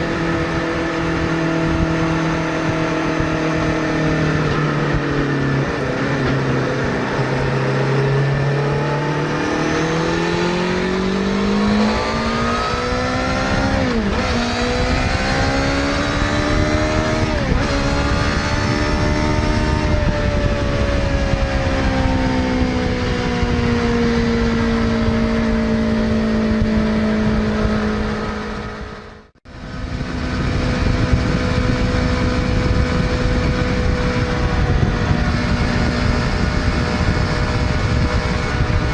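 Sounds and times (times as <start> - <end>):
motorcycle engine revving up: 0.0 - 38.9.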